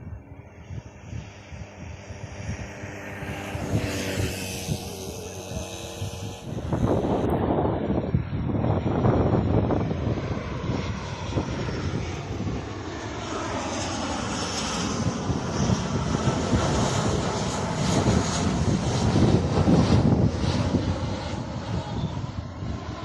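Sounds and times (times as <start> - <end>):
airliner engines rumbling: 0.0 - 23.0
high engine whine: 0.0 - 23.0.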